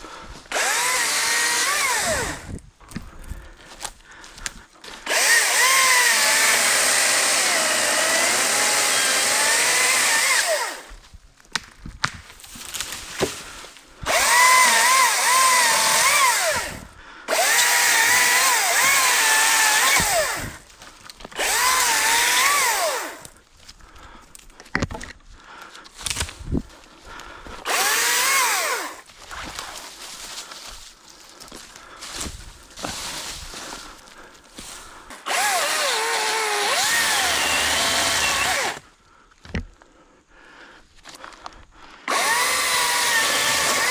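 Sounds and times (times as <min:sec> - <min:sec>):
chainsaw cutting wood: 0:00.5 - 0:03.1, 0:03.7 - 0:11.0, 0:12.6 - 0:23.4, 0:27.5 - 0:30.4, 0:34.6 - 0:39.7, 0:42.1 - 0:43.9.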